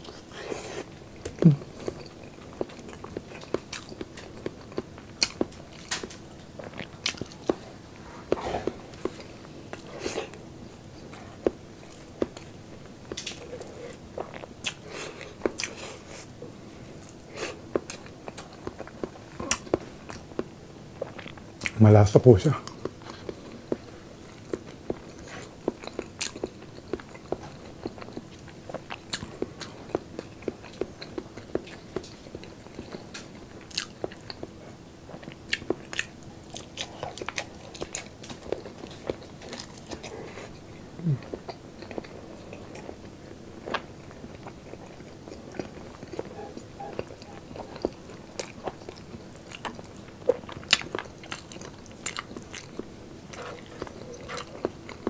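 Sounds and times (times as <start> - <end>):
person chewing food: 0.0 - 21.8, 22.6 - 55.0.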